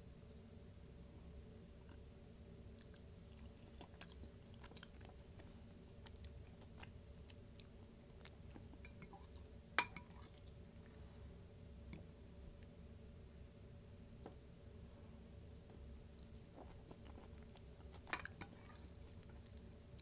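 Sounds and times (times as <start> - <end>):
close chewing: 2.8 - 9.5.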